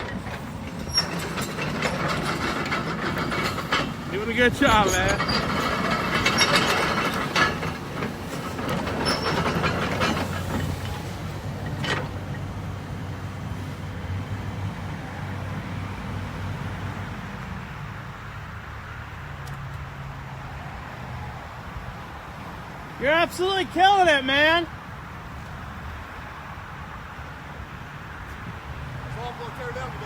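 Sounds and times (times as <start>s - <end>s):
diesel engine running: 0.0s - 18.6s.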